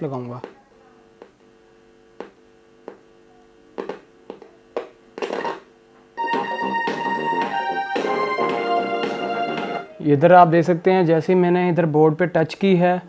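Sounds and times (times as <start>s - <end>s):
loud music through speaker: 6.2s - 10.0s.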